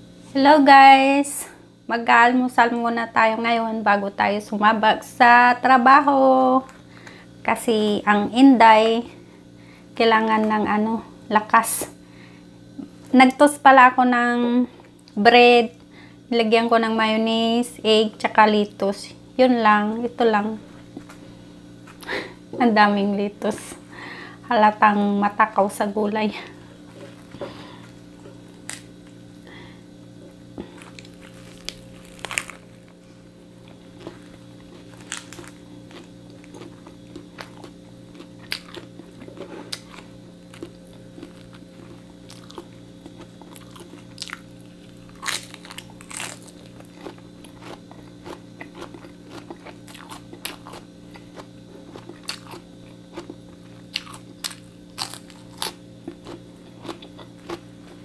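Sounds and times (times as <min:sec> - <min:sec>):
low hum: 0:19.3 - 0:47.6
crunchy sandwich chewing: 0:26.6 - 0:58.0.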